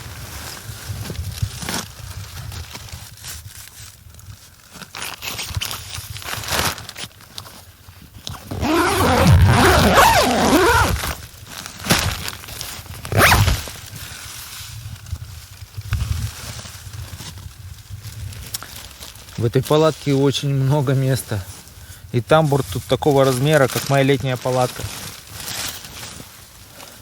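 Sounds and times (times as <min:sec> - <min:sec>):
tent fabric rustling: 0:04.7 - 0:19.5, 0:22.6 - 0:27.0
tent zipper pulled: 0:08.3 - 0:11.2, 0:13.0 - 0:13.8.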